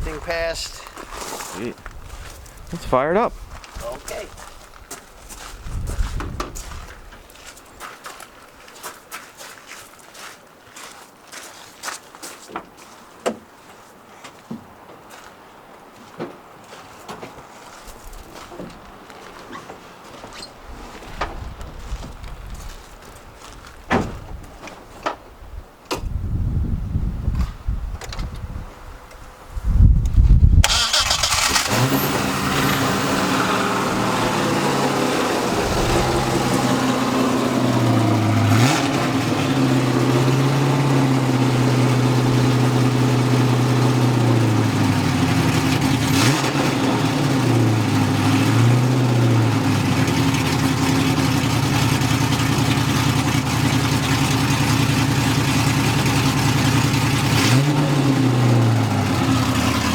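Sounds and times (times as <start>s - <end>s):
engine cranking: 30.6s - 59.9s
engine idling: 30.6s - 59.9s
engine revving: 30.6s - 59.9s.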